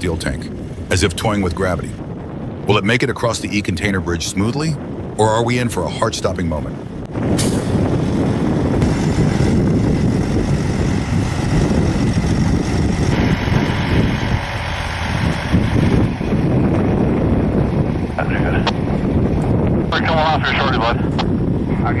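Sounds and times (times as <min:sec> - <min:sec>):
truck engine running: 0:06.9 - 0:21.7.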